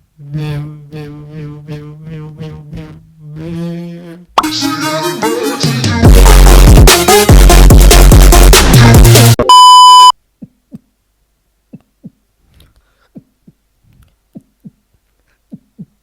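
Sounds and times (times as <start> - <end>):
electronic beep: 9.4 - 10.2.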